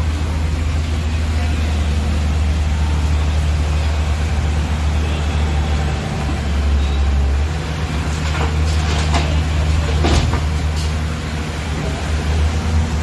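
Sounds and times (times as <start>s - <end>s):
heavy diesel engine running: 0.0s - 13.0s
clatter: 7.8s - 11.2s.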